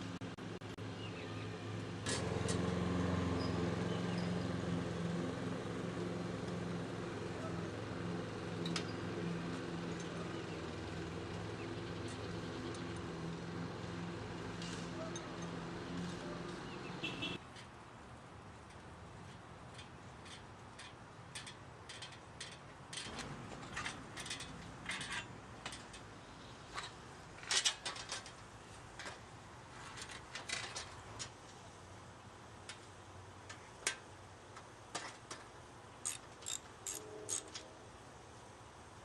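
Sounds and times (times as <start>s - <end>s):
metallic clicks of hand tools: 36.0s - 37.7s.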